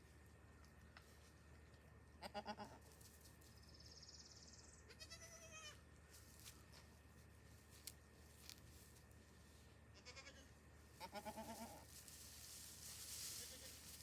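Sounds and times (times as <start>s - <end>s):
goats bleating: 4.9s - 5.8s, 10.0s - 11.9s, 13.4s - 13.9s.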